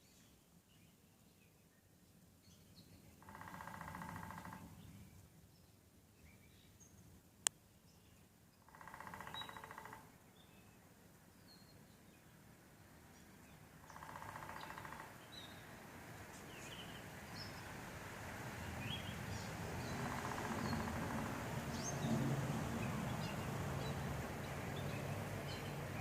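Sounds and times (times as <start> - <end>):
woodpecker drumming: 3.2 - 4.8, 8.7 - 10.1, 13.8 - 15.4, 19.8 - 26.0
birds chirping: 13.2 - 17.8, 18.6 - 26.0.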